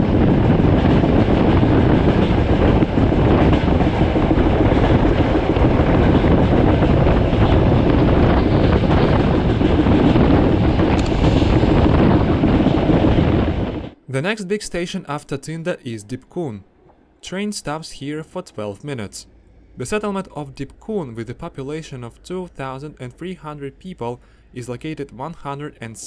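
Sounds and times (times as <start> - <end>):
rushing air: 0.0 - 14.0
train wheels rumbling on rails: 0.0 - 14.0.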